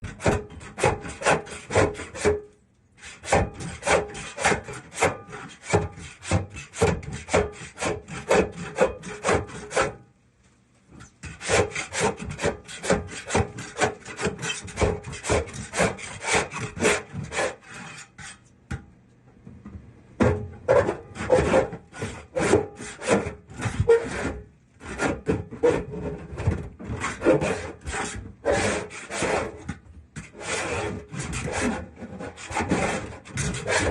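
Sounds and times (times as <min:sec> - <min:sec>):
scraper scraping grease off metal: 0:00.0 - 0:10.0, 0:11.2 - 0:18.4, 0:20.7 - 0:33.9.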